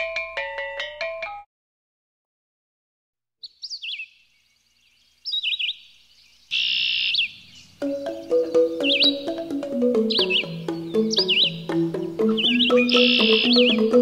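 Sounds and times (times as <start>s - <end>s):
melodic music track: 0.0s - 1.5s, 7.8s - 14.0s
bird chirping: 3.4s - 14.0s
harsh buzzy bird call: 6.5s - 14.0s.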